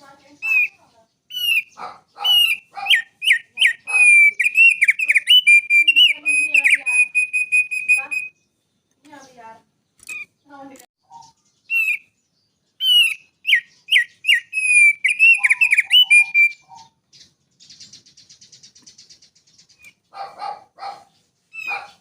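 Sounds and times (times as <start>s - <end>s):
harsh low bird calls: 0.0s - 8.6s, 9.2s - 22.0s
buzzy bird trill: 0.0s - 20.4s, 21.0s - 22.0s
songbird whistled notes: 0.3s - 8.5s, 11.1s - 12.2s, 12.8s - 20.0s.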